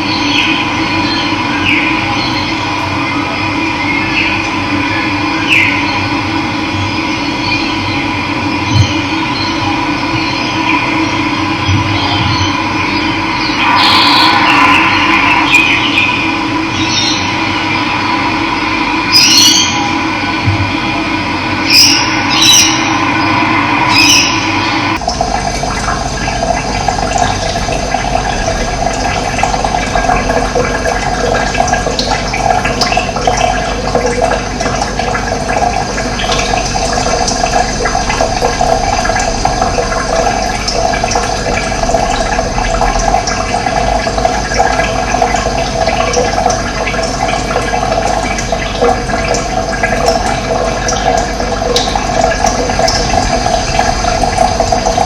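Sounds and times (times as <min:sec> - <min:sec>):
water rushing: 0:09.8 - 0:55.0
water splashes: 0:21.7 - 0:55.0.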